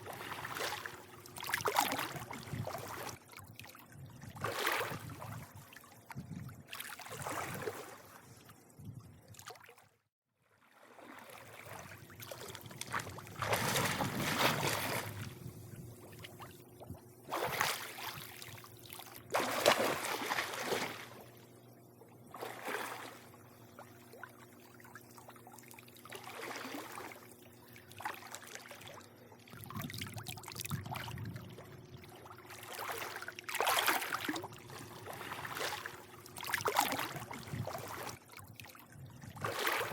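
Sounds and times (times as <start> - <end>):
pool water lapping and sloshing: 0.0 - 39.9
steady low hum: 11.5 - 39.9.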